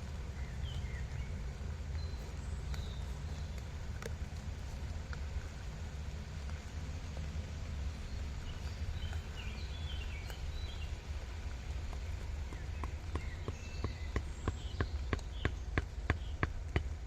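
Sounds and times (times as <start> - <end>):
low rumble: 0.0 - 17.0
sharp knocks: 12.5 - 17.0.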